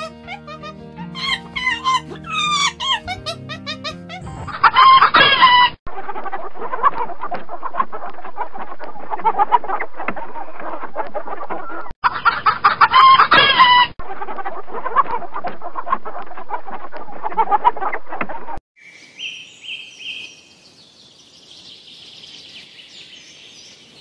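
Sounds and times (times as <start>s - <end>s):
hens clucking: 4.1s - 18.2s
rooster crowing: 4.6s - 5.8s.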